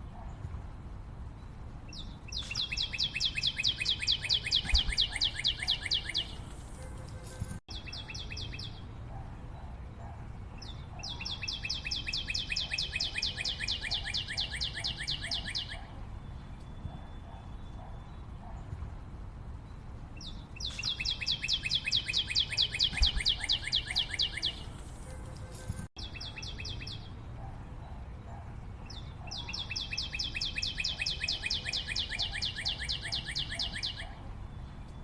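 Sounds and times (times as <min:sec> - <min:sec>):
bird singing fast trills: 0:01.9 - 0:06.4, 0:07.7 - 0:09.0, 0:10.5 - 0:18.4, 0:20.2 - 0:24.7, 0:26.0 - 0:27.2, 0:28.9 - 0:34.9.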